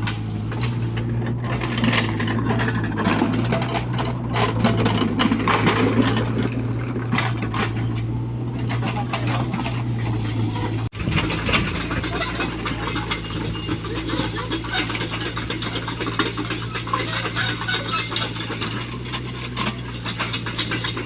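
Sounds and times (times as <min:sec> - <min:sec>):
clinks and rattles: 0:00.0 - 0:21.0
excavator engine running: 0:00.0 - 0:21.0.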